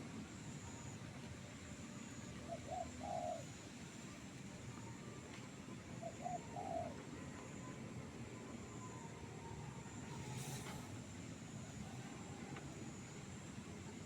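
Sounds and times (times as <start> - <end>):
dove cooing: 2.6 - 3.5, 6.0 - 7.0.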